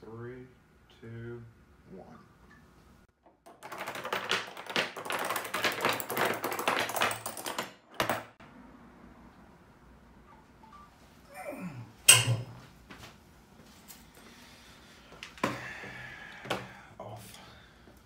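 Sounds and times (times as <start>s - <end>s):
padlocks toppling and clacking: 3.2s - 8.4s.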